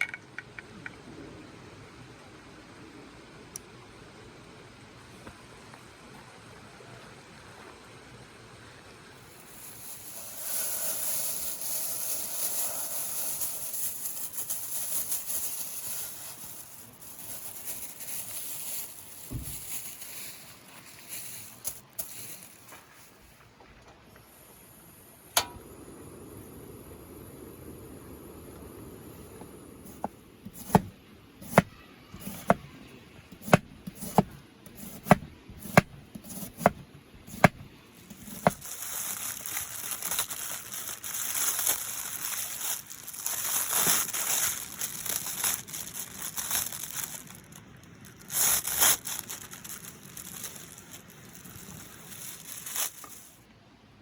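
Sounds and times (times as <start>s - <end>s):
food sizzling in a hot pan: 9.4s - 14.4s
knife chopping on cutting board: 30.0s - 32.7s, 33.4s - 38.6s.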